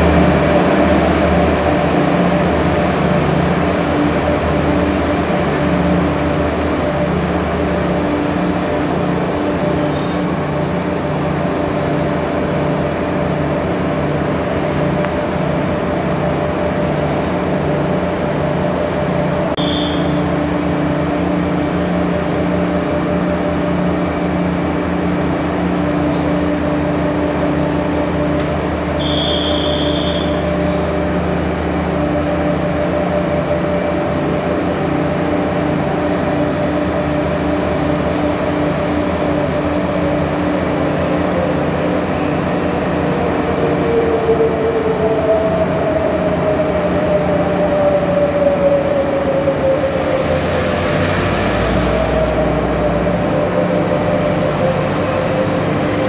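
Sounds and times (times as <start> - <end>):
train rumbling hum with throb: 0.0 - 56.0
short high beep: 29.0 - 30.4.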